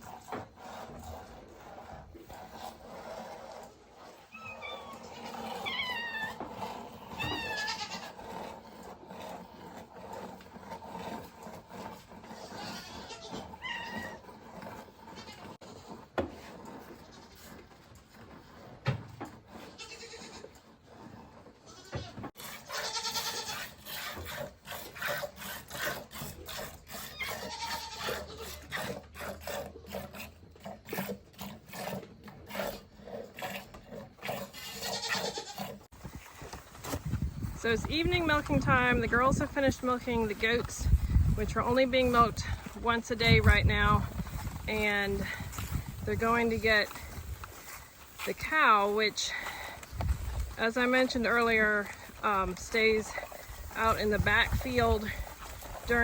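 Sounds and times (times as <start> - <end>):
goats bleating: 7.1 - 8.2, 12.4 - 14.2, 19.7 - 20.5, 21.6 - 23.7, 27.1 - 28.6, 34.6 - 35.7.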